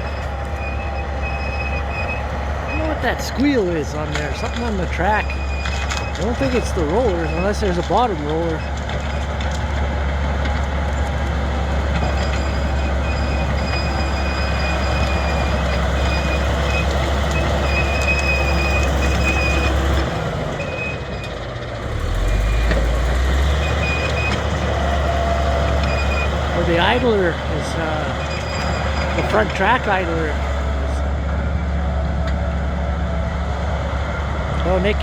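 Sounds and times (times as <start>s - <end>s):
bulldozer engine running: 0.0s - 35.0s
high-pitched track squeal: 21.9s - 31.1s.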